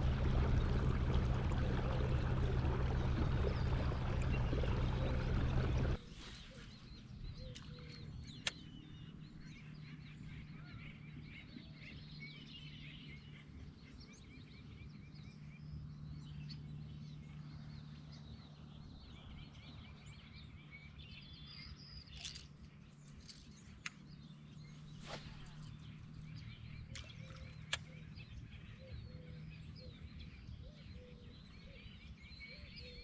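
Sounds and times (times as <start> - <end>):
steady low hum: 0.0 - 11.4
small birds chirping: 0.0 - 15.5, 16.3 - 33.0.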